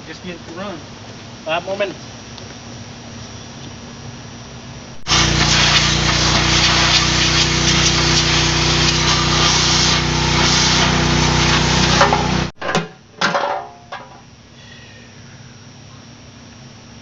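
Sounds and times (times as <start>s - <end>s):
water jet hissing: 5.0s - 12.6s
small engine humming: 5.1s - 12.6s.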